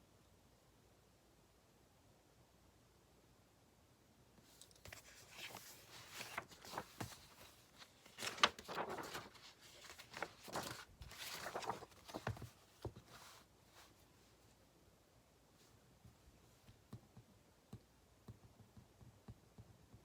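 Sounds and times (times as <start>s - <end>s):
paper rustling and scraping: 4.6s - 14.0s.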